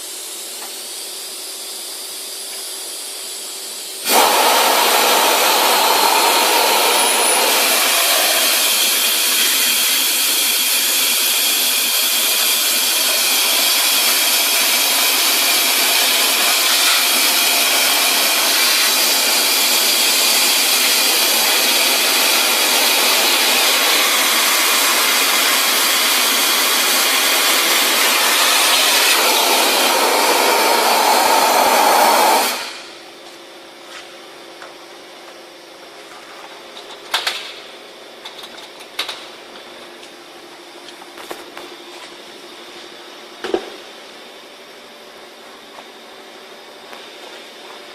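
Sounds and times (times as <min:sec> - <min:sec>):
vacuum cleaner air rush: 0:00.0 - 0:33.2.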